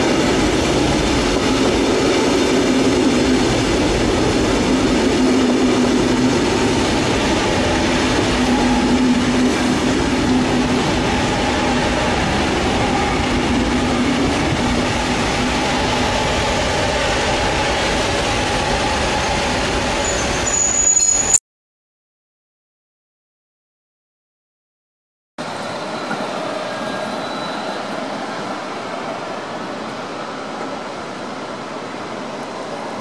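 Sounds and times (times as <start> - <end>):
train rumbling slowly: 0.0 - 20.6
train brake squeal: 20.0 - 21.4, 25.5 - 28.0.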